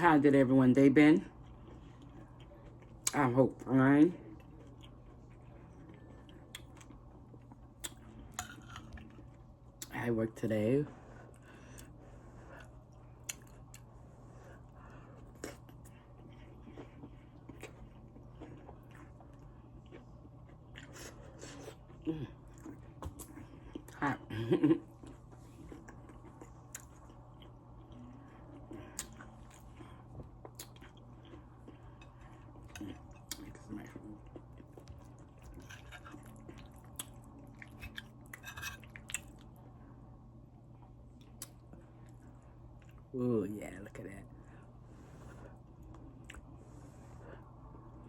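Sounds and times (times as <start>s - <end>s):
person chewing crispy food: 4.2s - 9.9s, 11.3s - 24.0s, 24.9s - 39.6s
wet chewing: 28.6s - 39.5s.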